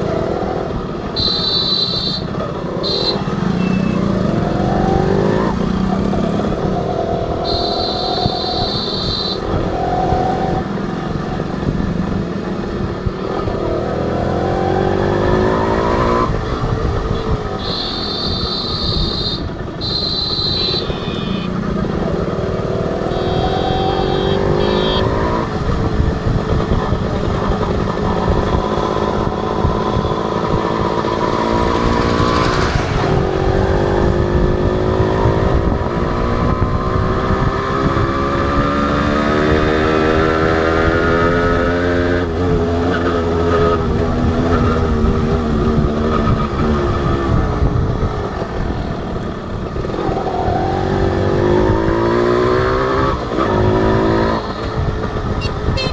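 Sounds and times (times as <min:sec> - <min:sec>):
motorcycle engine accelerating: 0:00.0 - 0:55.9
low wind rumble: 0:25.4 - 0:54.0.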